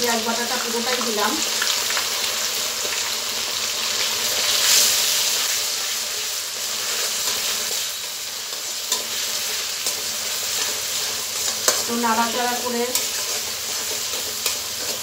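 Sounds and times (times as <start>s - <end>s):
paste sizzling in hot oil: 0.0s - 15.0s
spatula tapping pan: 11.4s - 11.9s.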